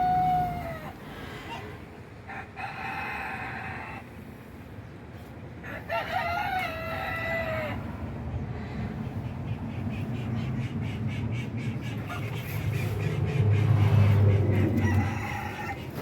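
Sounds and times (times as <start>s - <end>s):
rooster crowing: 0.0s - 1.6s, 2.3s - 4.1s, 5.6s - 7.8s, 14.5s - 16.0s.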